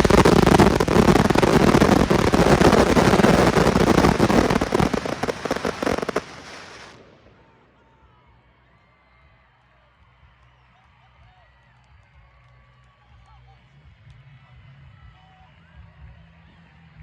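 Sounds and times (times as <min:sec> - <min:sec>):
fireworks bangs and crackle: 0:00.0 - 0:07.6.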